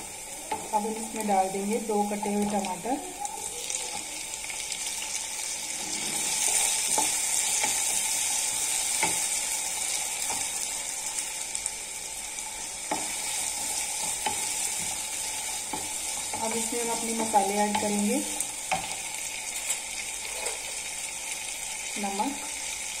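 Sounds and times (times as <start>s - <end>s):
vegetables sizzling in hot oil: 0.0s - 23.0s
wooden spoon scraping a pan: 5.6s - 9.4s, 19.9s - 20.9s.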